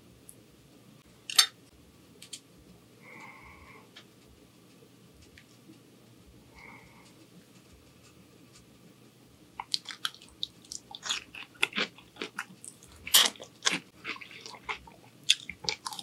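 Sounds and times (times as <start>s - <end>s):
crisp crunches of chewing asparagus: 9.6s - 16.0s.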